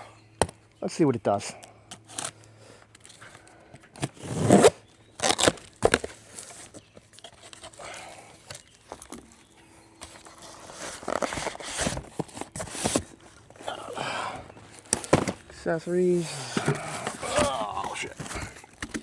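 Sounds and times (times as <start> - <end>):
packaging tearing and crinkling: 4.0 - 7.7, 10.1 - 13.2.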